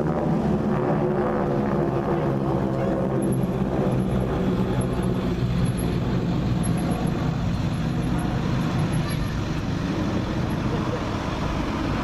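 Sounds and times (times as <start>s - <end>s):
engine droning steadily: 0.0s - 12.0s.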